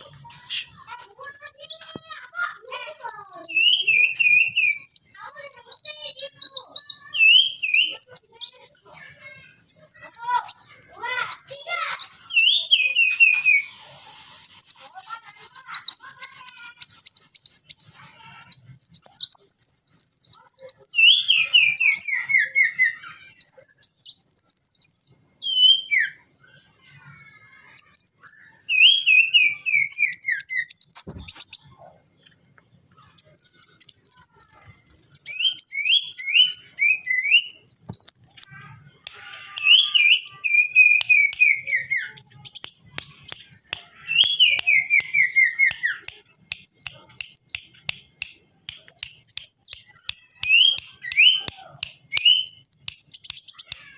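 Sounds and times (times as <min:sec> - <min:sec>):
high chattering birdsong: 0:00.0 - 0:53.9
bird song stepping down in pitch: 0:28.8 - 0:31.8.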